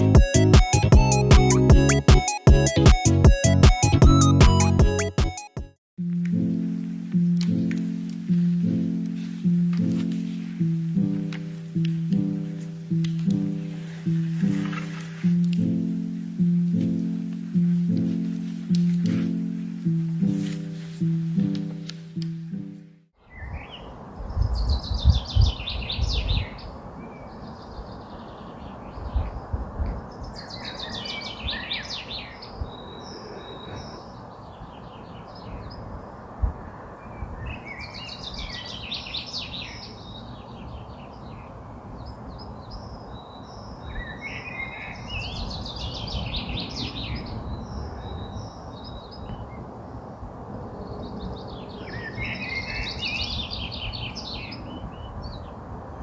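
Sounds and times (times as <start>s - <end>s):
steady outdoor rush: 0.0s - 5.5s.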